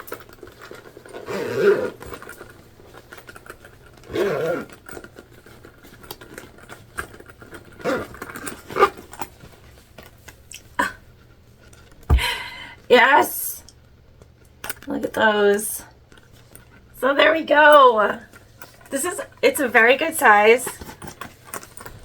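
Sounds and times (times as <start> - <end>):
vinyl bag rustling: 0.0 - 10.5, 20.4 - 22.0
bag zipper closing: 0.1 - 6.0, 7.6 - 9.3.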